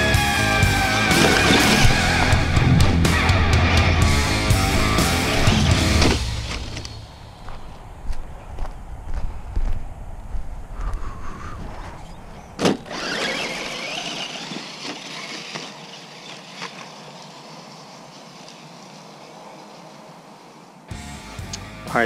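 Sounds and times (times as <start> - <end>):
rumbling handling noise: 1.0 - 11.0
electric motor whining: 12.1 - 19.0.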